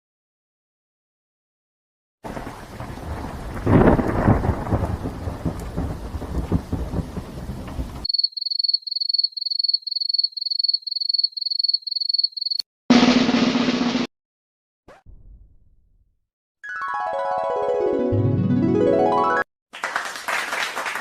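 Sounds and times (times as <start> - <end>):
rain: 2.2 - 8.1
thunder crack: 2.2 - 8.1.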